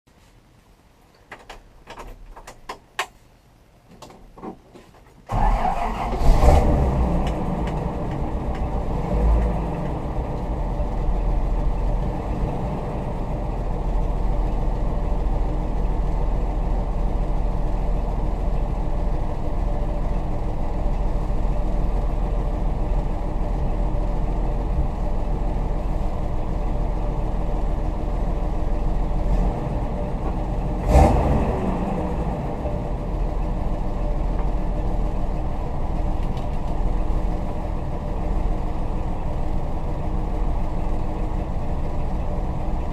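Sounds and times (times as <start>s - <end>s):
car engine starting and idling: 5.3s - 42.9s.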